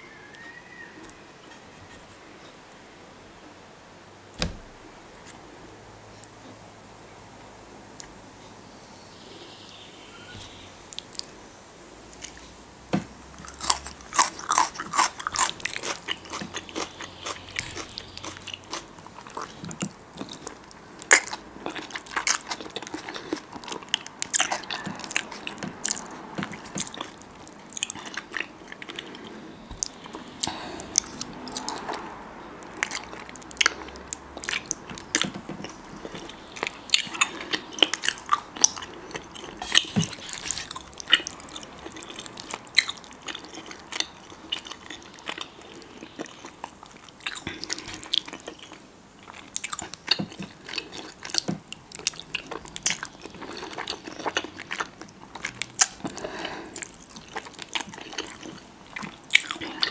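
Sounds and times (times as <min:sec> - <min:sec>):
person chewing food: 0:12.1 - 0:59.9.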